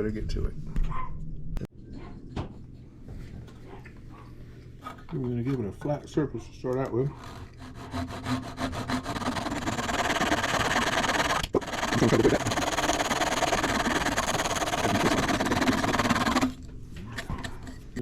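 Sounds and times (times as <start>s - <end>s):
wood being sanded: 7.2s - 16.6s.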